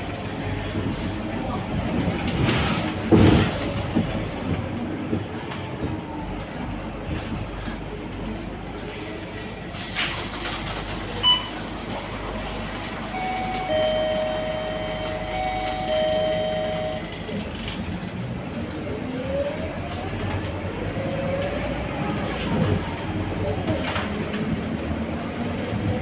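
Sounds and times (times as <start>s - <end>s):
bus engine and road rumble: 0.0s - 26.0s
held electronic tones: 13.1s - 17.1s
short beep: 13.1s - 17.2s.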